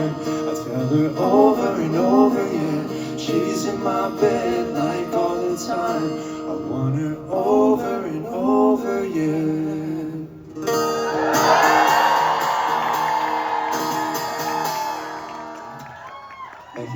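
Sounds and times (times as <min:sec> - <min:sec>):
man singing: 0:00.0 - 0:10.4
acoustic guitar: 0:00.0 - 0:16.9
audience cheering: 0:11.1 - 0:16.9.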